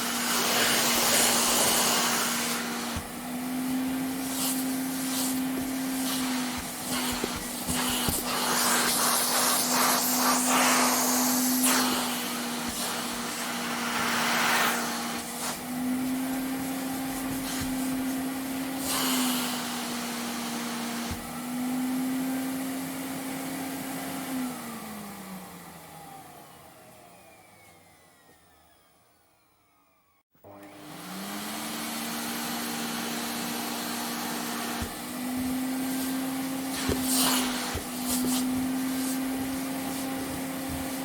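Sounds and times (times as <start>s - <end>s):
vacuum cleaner running: 0.0s - 41.0s
suction hiss: 4.1s - 15.6s, 36.7s - 39.2s
vacuum motor winding down: 18.4s - 41.0s.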